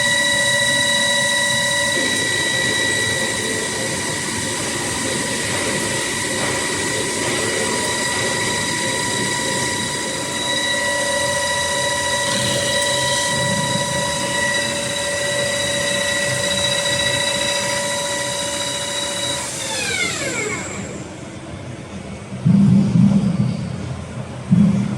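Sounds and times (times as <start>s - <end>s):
lathe running with high whine: 0.0s - 22.4s
loud low rumble: 21.2s - 24.9s.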